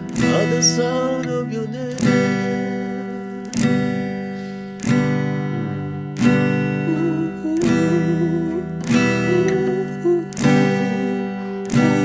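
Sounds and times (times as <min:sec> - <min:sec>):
acoustic guitar strumming chords: 0:00.0 - 0:12.0
wavering held note: 0:05.3 - 0:12.0.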